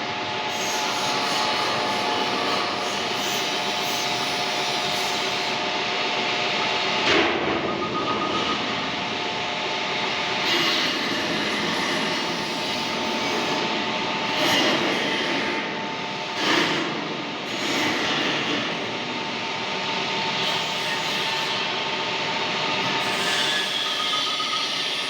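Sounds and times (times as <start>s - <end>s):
metal lathe whining: 20.3s - 25.0s.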